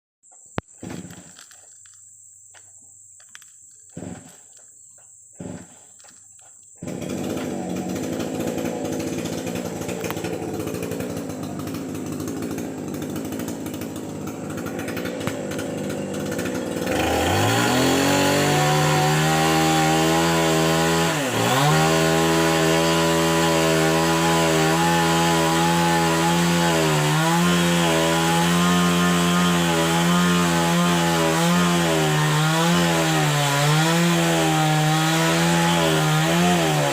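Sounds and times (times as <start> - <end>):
chainsaw starting and running: 5.4 - 6.1, 6.8 - 36.9.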